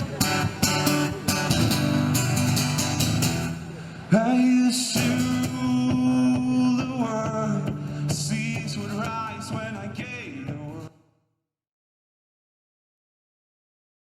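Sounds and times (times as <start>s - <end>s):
strummed guitar: 0.0s - 10.9s
man singing: 4.1s - 11.0s.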